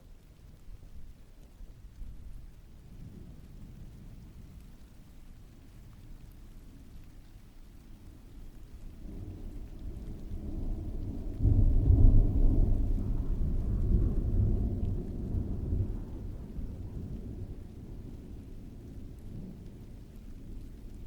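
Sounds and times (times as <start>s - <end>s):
steady rain: 0.0s - 21.0s
thunder rumbling: 8.8s - 21.0s.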